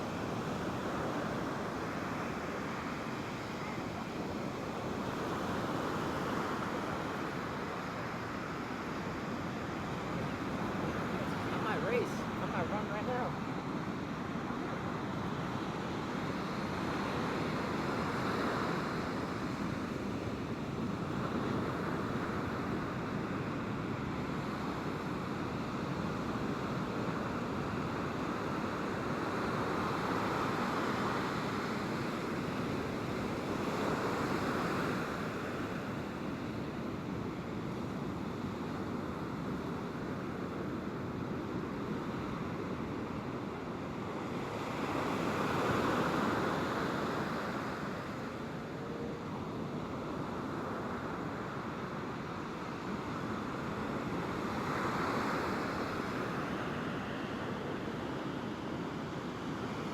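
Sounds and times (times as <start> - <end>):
ocean surf breaking: 0.0 - 24.8, 42.3 - 59.9.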